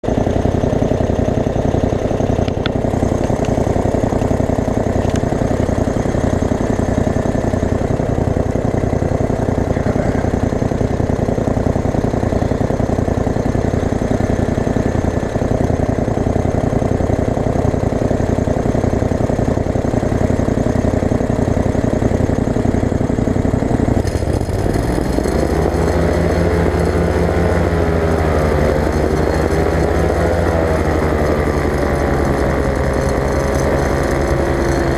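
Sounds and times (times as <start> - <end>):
ultralight aircraft engine and propeller: 0.0 - 34.9.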